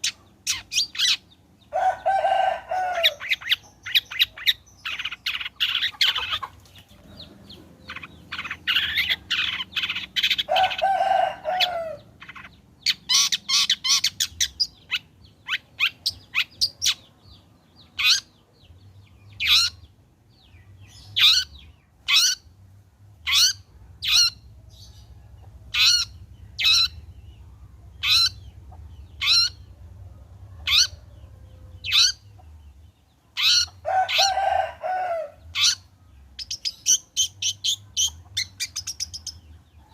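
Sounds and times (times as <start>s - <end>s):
bird chattering and calling: 0.0s - 22.6s, 23.2s - 39.9s.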